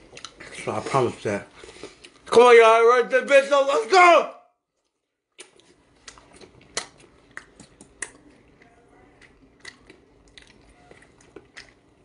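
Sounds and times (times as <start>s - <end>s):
wet mouth chewing clicks: 5.3s - 8.4s, 9.2s - 11.9s.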